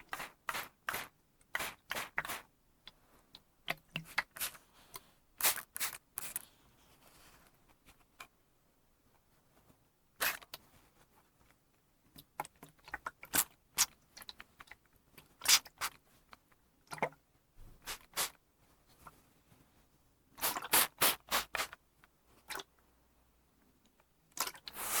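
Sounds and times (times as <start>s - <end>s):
spray bottle hissing sprays: 20.4s - 21.8s, 24.8s - 25.0s.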